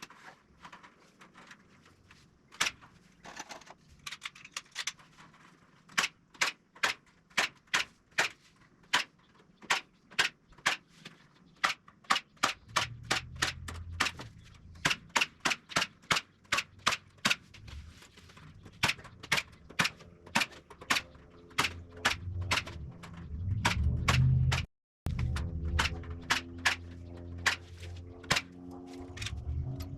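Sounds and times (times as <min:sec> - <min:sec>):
tool strikes on wooden frame: 0:11.6 - 0:17.4, 0:25.2 - 0:28.6
low hum: 0:12.6 - 0:15.2, 0:17.4 - 0:29.9.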